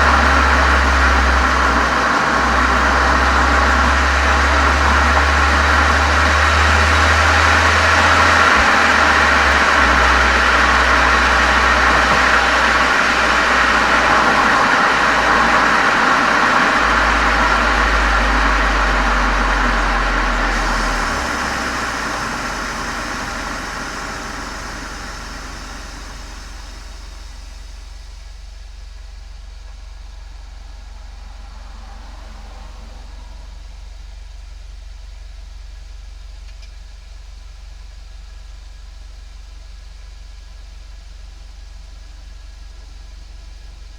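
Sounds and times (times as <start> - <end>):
loud rushing noise: 0.0 - 28.4, 30.2 - 34.0
car exhaust drone: 0.0 - 43.9.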